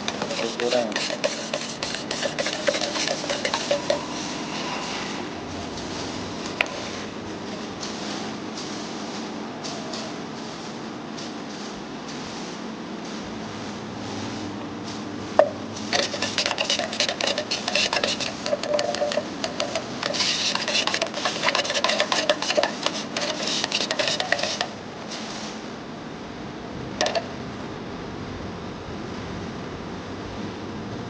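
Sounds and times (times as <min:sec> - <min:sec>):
paint stirring clinking in tin: 0:00.0 - 0:04.2, 0:15.9 - 0:24.7.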